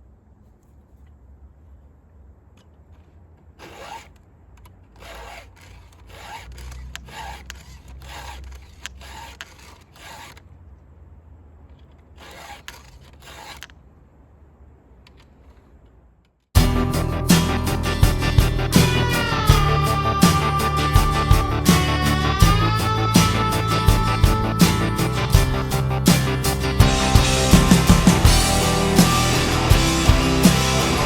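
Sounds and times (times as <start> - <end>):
file rasping on chainsaw chain: 3.6 - 4.2, 4.9 - 10.5, 12.1 - 13.8, 17.3 - 31.0.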